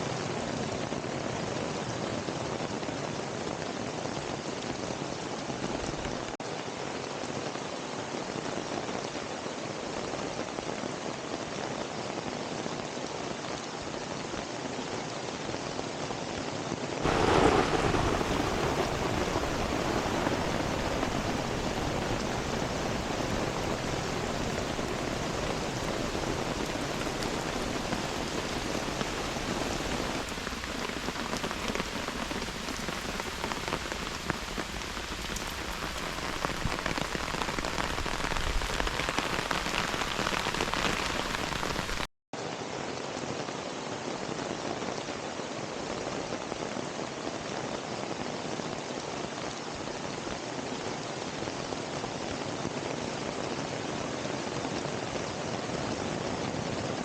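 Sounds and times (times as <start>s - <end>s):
heavy rain pattering: 0.1s - 16.3s, 17.0s - 42.1s.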